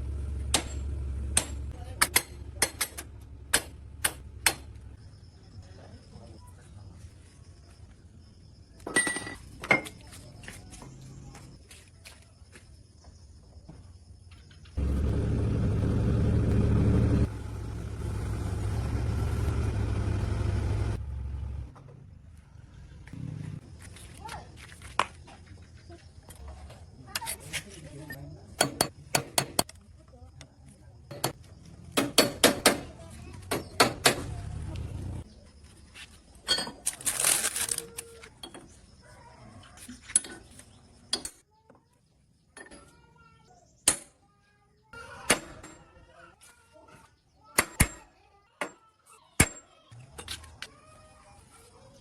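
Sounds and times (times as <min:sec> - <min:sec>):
engine running: 0:00.0 - 0:01.7, 0:14.8 - 0:21.9
low hum: 0:14.8 - 0:21.8.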